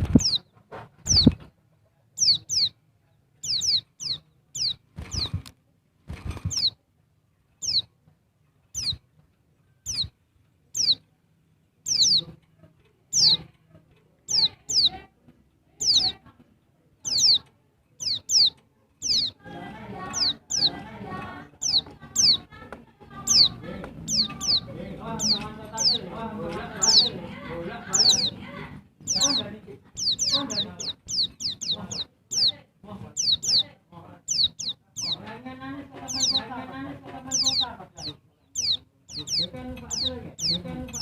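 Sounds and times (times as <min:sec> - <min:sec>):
white-eye bird calling: 0:02.2 - 0:02.8, 0:07.6 - 0:07.9, 0:08.8 - 0:09.0, 0:09.9 - 0:10.1, 0:10.8 - 0:11.0, 0:11.9 - 0:12.3, 0:13.1 - 0:13.4, 0:17.1 - 0:17.4, 0:18.0 - 0:19.4, 0:29.1 - 0:32.5, 0:33.2 - 0:33.6, 0:34.3 - 0:35.3, 0:37.3 - 0:41.0.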